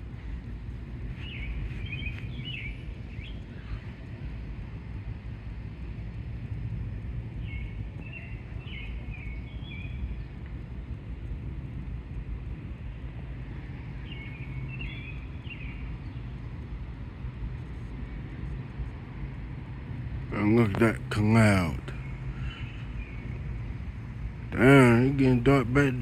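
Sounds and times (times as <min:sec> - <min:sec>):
songbird chirping: 0:01.0 - 0:04.4, 0:07.3 - 0:11.0, 0:12.6 - 0:17.2, 0:20.2 - 0:26.0.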